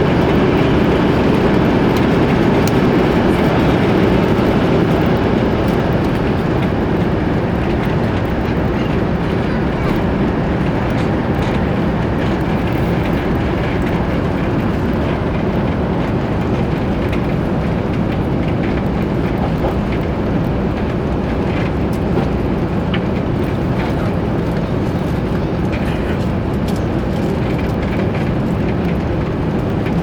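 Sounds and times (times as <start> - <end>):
jet engines roaring in cabin: 0.0 - 30.0
faint rattles of cabin fittings: 0.1 - 30.0.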